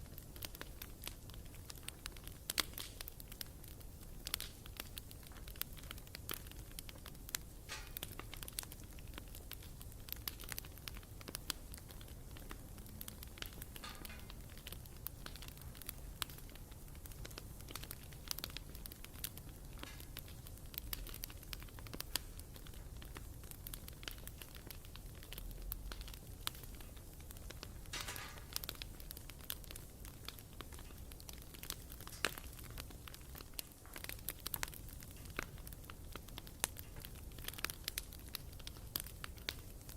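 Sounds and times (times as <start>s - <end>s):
bonfire crackling and popping: 0.0s - 39.9s
low rumble of flames: 0.0s - 39.9s.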